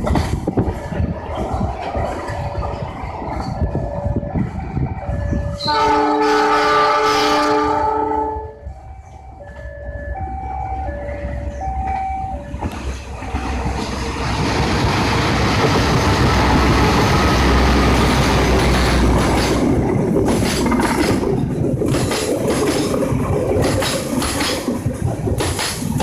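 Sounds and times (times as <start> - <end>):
train rumbling and rattling: 0.0 - 26.0.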